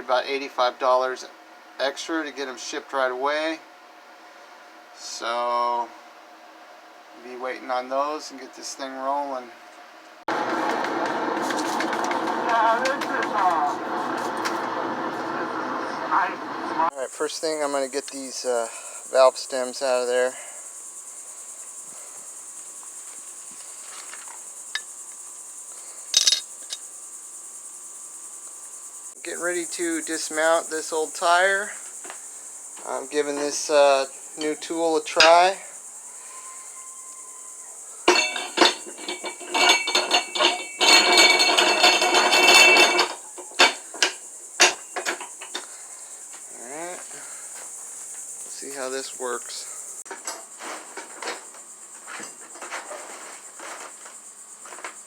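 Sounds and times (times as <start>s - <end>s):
crickets chirping: 0.0s - 55.0s
tool clanking on steel wheel rim: 26.2s - 26.8s, 34.4s - 35.6s, 38.1s - 45.7s.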